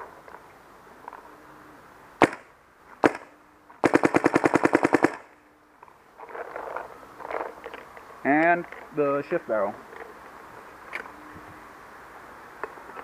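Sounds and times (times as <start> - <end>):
paintball marker firing: 2.2 - 5.2.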